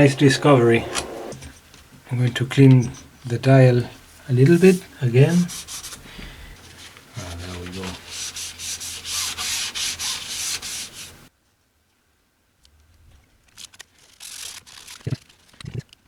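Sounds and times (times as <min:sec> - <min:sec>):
cloth rubbing over radio dial: 0:00.0 - 0:01.4.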